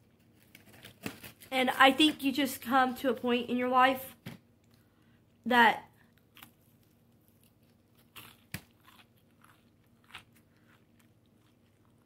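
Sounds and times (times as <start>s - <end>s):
biting and chewing food: 6.0s - 12.0s
crisp crunches: 6.0s - 12.0s.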